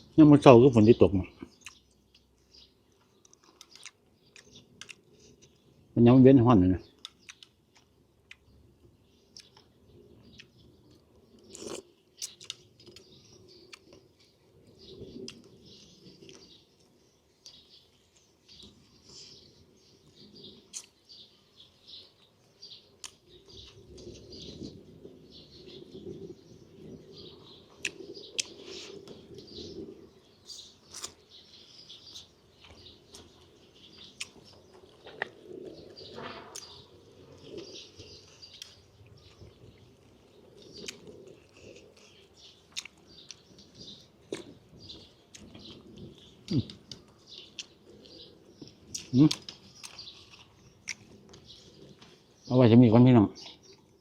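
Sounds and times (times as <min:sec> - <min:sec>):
birds chirping: 0:00.0 - 0:54.0
person chewing and biting food: 0:11.4 - 0:13.1, 0:30.5 - 0:31.2.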